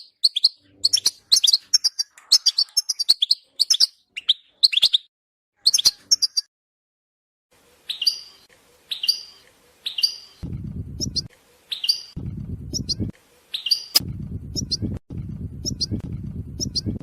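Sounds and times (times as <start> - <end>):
goldfinch calling: 7.9 - 10.4, 11.0 - 12.2, 13.6 - 14.0
low background rumble: 10.4 - 11.3, 12.1 - 13.1, 14.0 - 17.0.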